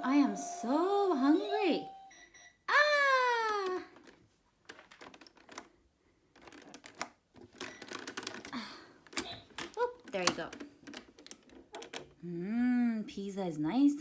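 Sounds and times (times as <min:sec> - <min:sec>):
plastic toy clicks and taps: 0:09.1 - 0:12.2.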